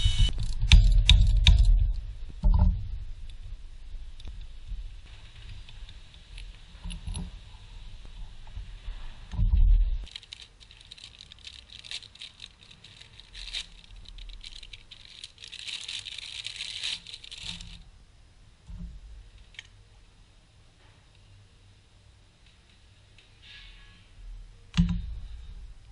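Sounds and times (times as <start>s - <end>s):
handling clicks and rustling: 10.0s - 17.8s.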